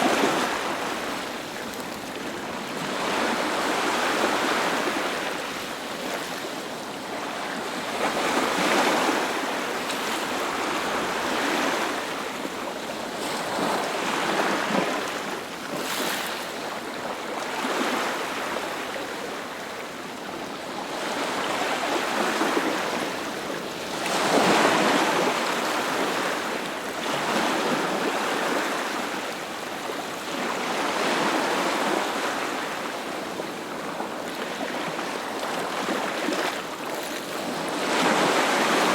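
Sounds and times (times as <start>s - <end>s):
sea waves breaking on shore: 0.0s - 38.9s.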